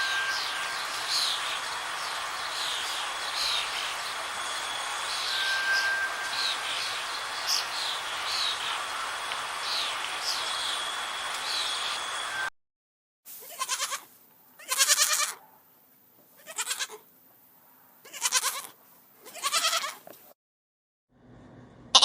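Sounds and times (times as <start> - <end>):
faint bird chirps: 0.0 - 12.5
outdoor background noise: 0.0 - 12.5, 13.3 - 20.4
goat bleating: 13.4 - 15.4, 16.4 - 17.0, 18.0 - 20.0.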